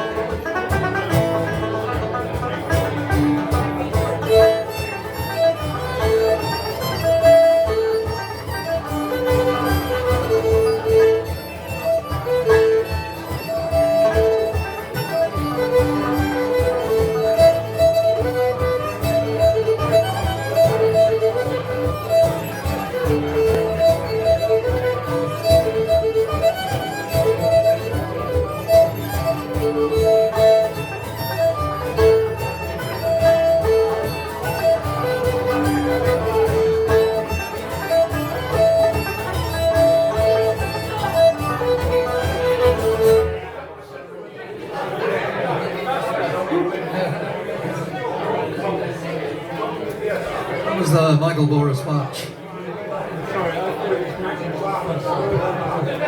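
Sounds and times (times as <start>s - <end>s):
sustained melody of held notes: 0.0s - 43.4s
strummed twelve-string guitar: 0.0s - 43.8s
banjo: 0.0s - 51.6s, 52.2s - 56.0s.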